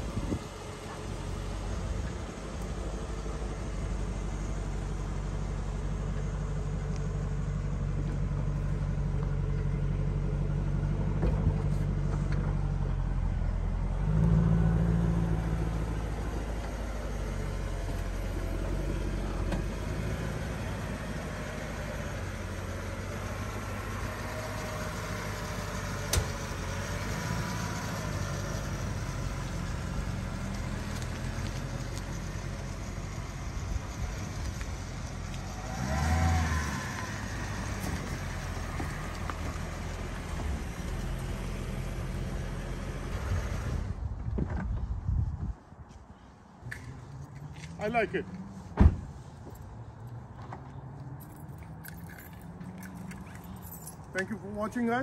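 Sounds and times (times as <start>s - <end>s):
car engine rumbling: 0.0s - 55.0s
engine rev: 10.1s - 44.1s.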